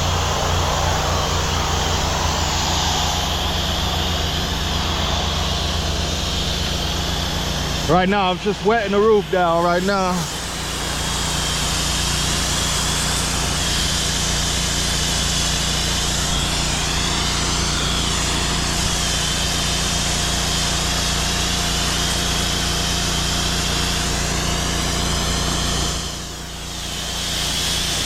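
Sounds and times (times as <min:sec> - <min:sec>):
high spray hiss: 0:00.0 - 0:14.8
pressure washer engine hum: 0:00.0 - 0:28.0.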